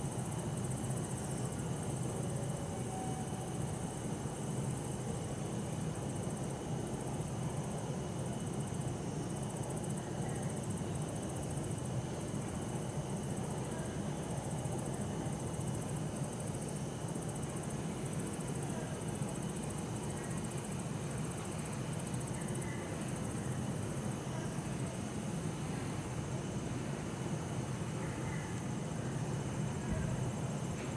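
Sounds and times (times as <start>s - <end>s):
insects trilling: 0.0s - 30.8s.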